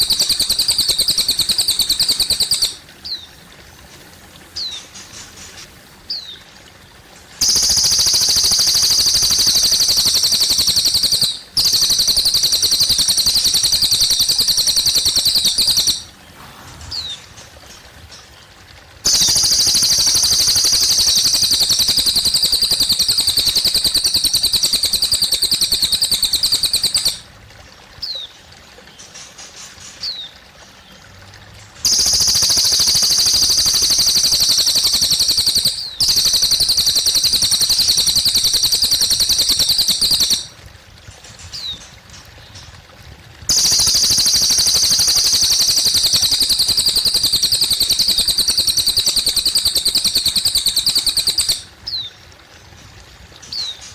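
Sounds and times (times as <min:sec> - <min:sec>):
bird singing fast trills: 0:00.0 - 0:03.3, 0:07.4 - 0:16.2, 0:19.1 - 0:27.2, 0:31.8 - 0:40.5, 0:43.5 - 0:52.2
water trickling: 0:00.0 - 0:53.9.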